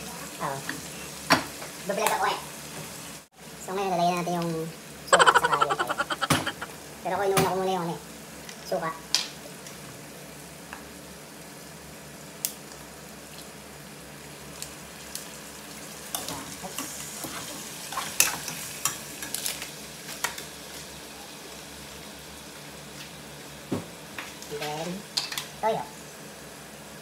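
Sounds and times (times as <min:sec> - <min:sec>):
meat sizzling in a pot: 0:00.0 - 0:03.3, 0:08.8 - 0:27.0.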